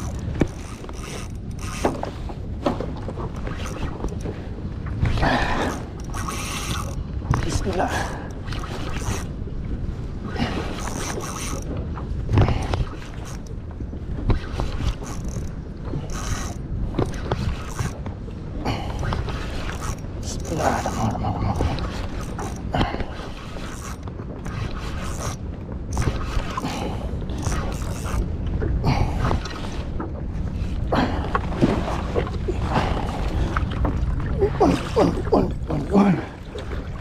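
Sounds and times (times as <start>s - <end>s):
fishing reel clicking: 0.0s - 2.0s, 5.7s - 7.5s, 8.5s - 9.3s, 10.8s - 11.7s, 14.8s - 15.5s, 16.1s - 16.6s, 17.5s - 18.0s, 19.6s - 21.0s, 23.6s - 24.0s, 24.9s - 26.7s, 27.4s - 28.2s
wind and water rumble: 0.0s - 37.0s.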